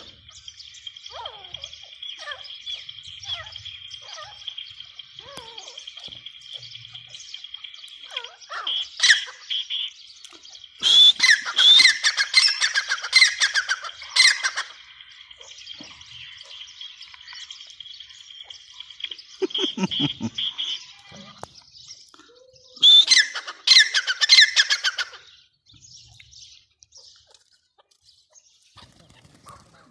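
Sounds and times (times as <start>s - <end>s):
francolin harsh repeated calls: 0.9s - 10.0s, 10.7s - 17.0s, 17.7s - 21.3s, 22.8s - 25.3s
high-pitched chirping: 1.0s - 21.0s.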